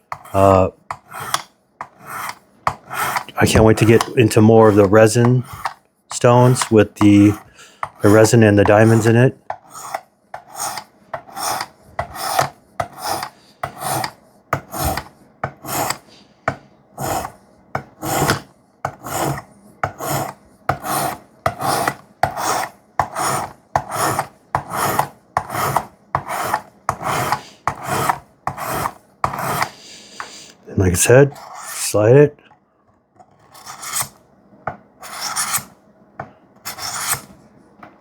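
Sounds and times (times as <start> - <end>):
sharpening stone scraping knife blade: 33.5 - 34.1, 35.0 - 35.7, 36.7 - 37.3.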